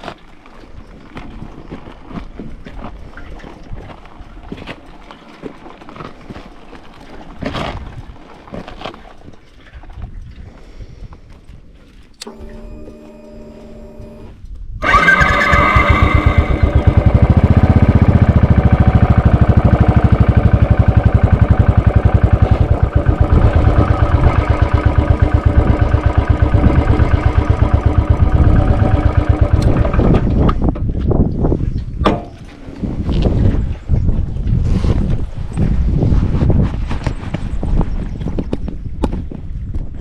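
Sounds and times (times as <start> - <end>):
motorcycle engine starting and idling: 12.0 - 31.0.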